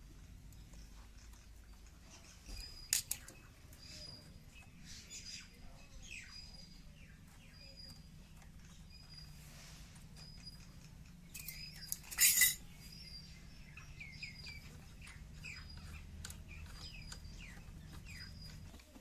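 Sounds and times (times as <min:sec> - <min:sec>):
steady low hum: 0:00.0 - 0:18.9
small birds chirping: 0:00.0 - 0:19.0
metal tools clinking: 0:11.3 - 0:12.8
metal clatter: 0:11.4 - 0:12.7.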